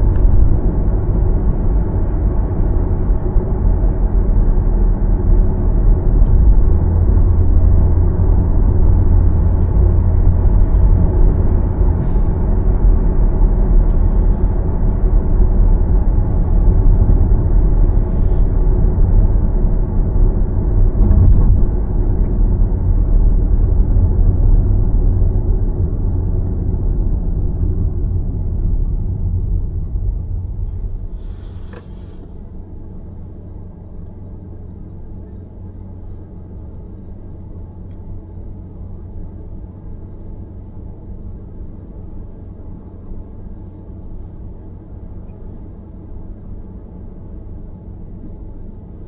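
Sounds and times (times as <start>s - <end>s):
road and tyre rumble: 0.0s - 49.0s
faint brief hisses: 30.8s - 32.4s.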